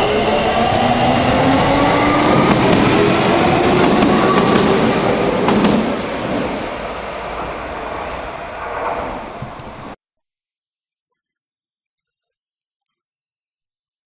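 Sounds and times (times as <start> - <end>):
train wheels rumbling: 0.0 - 10.0.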